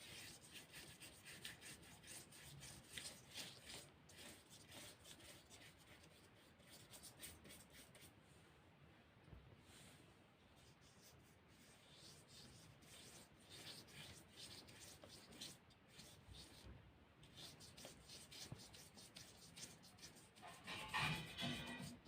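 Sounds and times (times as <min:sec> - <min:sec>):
brush scratching on paper: 0:00.0 - 0:08.1, 0:10.6 - 0:22.0
knock and clatter: 0:20.5 - 0:22.0.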